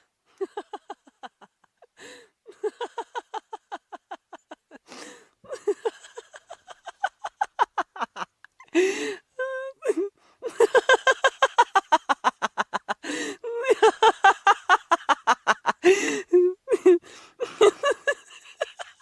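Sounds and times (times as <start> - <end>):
person laughing heartily: 0.3 - 19.0
gasping breath: 4.8 - 5.4, 8.7 - 9.3, 13.0 - 13.4, 15.8 - 16.4.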